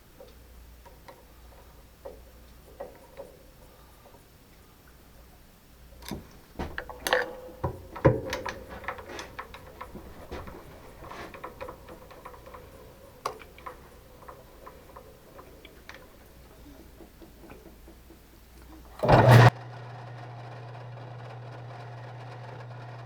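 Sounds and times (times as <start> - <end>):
metal tools clinking: 6.0 - 18.0.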